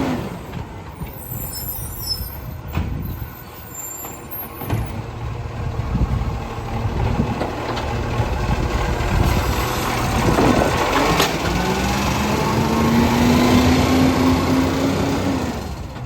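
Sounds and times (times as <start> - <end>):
garbage truck engine running: 4.4 - 16.0.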